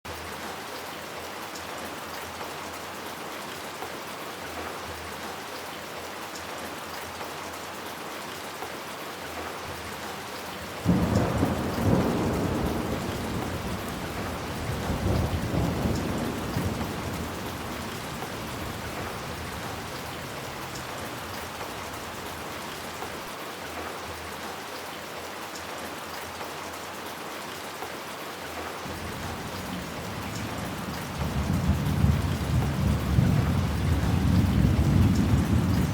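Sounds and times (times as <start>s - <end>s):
steady rain falling: 0.1s - 35.9s
thunder rumbling: 10.8s - 23.0s, 28.9s - 35.9s.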